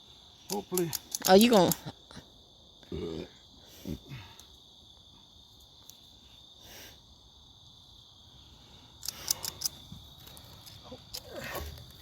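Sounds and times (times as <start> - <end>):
high-pitched insect chorus: 0.0 - 12.0
low grunt-like vocal sound: 2.8 - 4.2.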